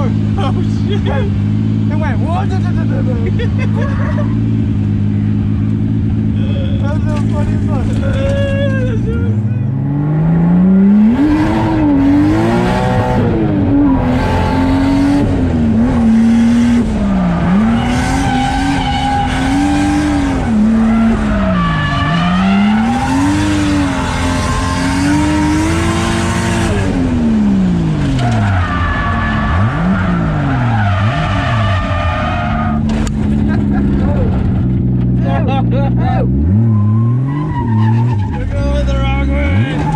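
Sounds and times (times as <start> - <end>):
tires squealing: 6.8 - 27.0, 27.8 - 39.9
car engine revving hard: 9.7 - 39.9.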